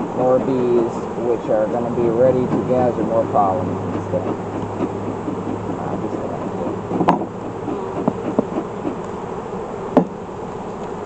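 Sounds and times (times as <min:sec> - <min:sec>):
honeybees buzzing: 0:00.0 - 0:11.0
sharp knocks: 0:06.9 - 0:07.4, 0:10.0 - 0:10.2.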